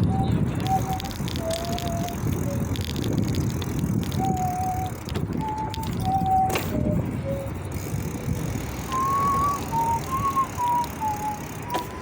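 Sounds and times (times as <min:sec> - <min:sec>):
person whistling a tune: 0:00.0 - 0:02.6, 0:04.2 - 0:07.5, 0:08.9 - 0:11.5
wind and bicycle tyres rumbling: 0:00.0 - 0:12.0.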